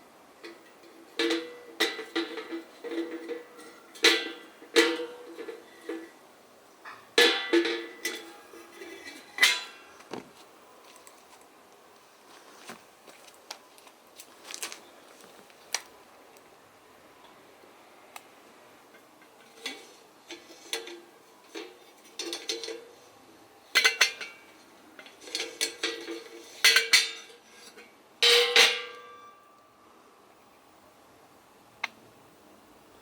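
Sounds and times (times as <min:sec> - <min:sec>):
metal kettle lids clinking: 0:00.4 - 0:06.2, 0:06.9 - 0:09.8, 0:19.5 - 0:22.9, 0:23.7 - 0:24.4, 0:25.0 - 0:27.3, 0:28.2 - 0:29.1.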